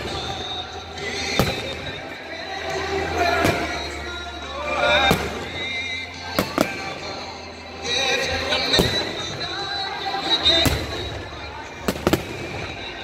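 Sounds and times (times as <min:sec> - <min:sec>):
fireworks bursting with bangs: 0:00.0 - 0:04.2, 0:04.9 - 0:07.3, 0:08.6 - 0:13.0
music playing: 0:00.0 - 0:13.0.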